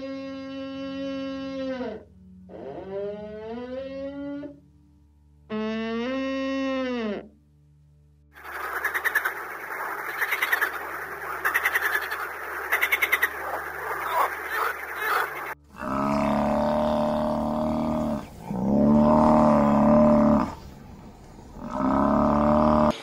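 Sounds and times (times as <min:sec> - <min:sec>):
frogs croaking in chorus: 0:08.4 - 0:20.6
water buffalo mooing: 0:15.7 - 0:20.8, 0:21.6 - 0:23.0.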